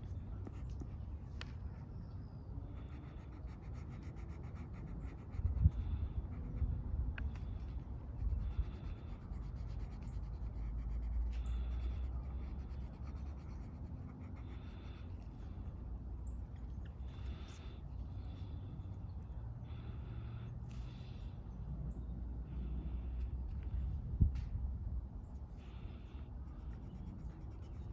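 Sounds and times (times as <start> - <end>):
scribbling on paper: 2.8 - 6.7, 7.4 - 15.8, 26.4 - 27.9.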